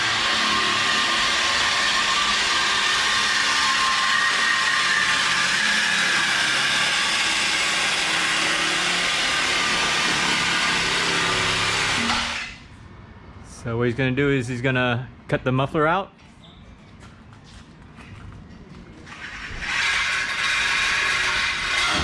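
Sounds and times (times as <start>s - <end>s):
shop machinery whirring: 0.0s - 12.8s, 18.7s - 22.0s.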